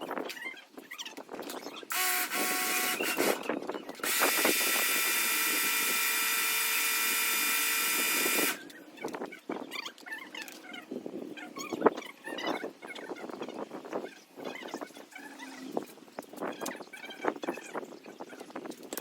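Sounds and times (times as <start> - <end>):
high-pressure water spray: 1.9 - 3.4, 4.0 - 8.6.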